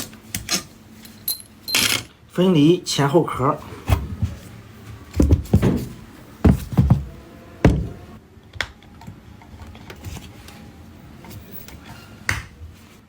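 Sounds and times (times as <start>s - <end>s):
quiet working noise: 0.0s - 13.0s
metal housings knocked apart: 1.1s - 2.1s.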